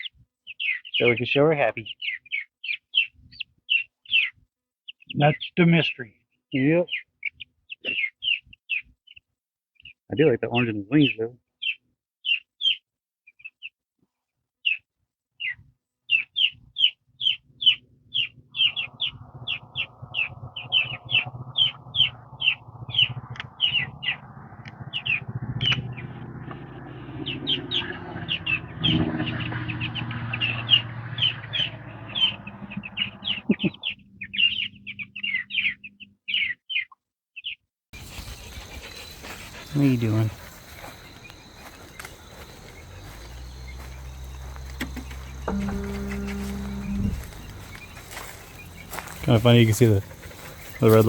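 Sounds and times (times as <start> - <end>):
young chickens peeping: 15.4 - 51.0
low steady hum: 42.8 - 50.8.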